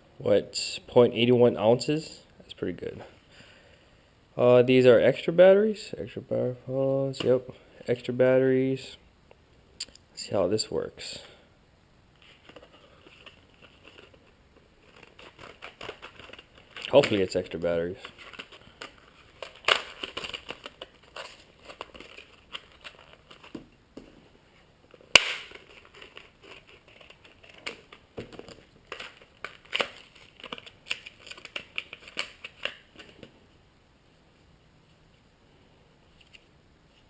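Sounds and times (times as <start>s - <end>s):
hard plastic packaging crackling: 12.3s - 23.7s, 24.9s - 33.2s
sharp plastic snap: 25.1s - 25.6s.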